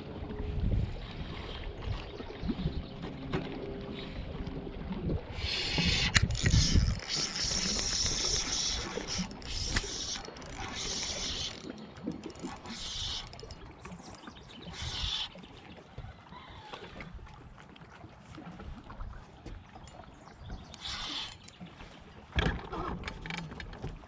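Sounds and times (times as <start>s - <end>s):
fishing reel whirring: 5.4s - 15.3s, 20.7s - 21.6s.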